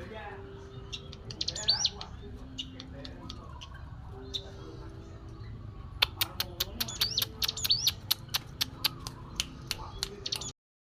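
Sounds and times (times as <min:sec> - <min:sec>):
bird clicking calls: 0:05.9 - 0:10.6.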